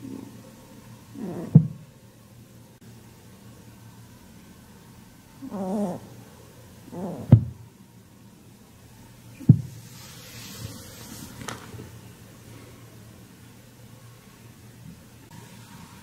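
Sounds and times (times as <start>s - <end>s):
rabbit growling: 1.0s - 1.9s, 5.4s - 7.7s.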